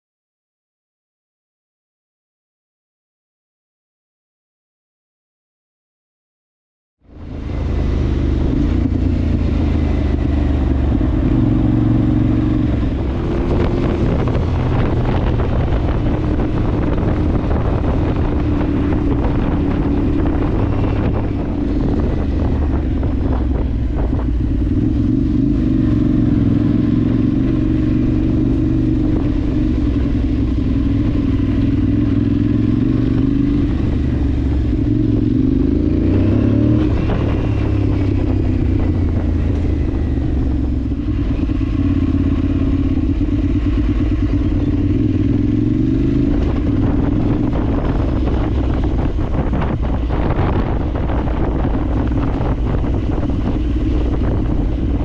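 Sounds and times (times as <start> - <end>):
motorcycle engine running: 7.0 - 55.0
road noise: 7.0 - 55.0
wind noise on microphone: 7.1 - 55.0.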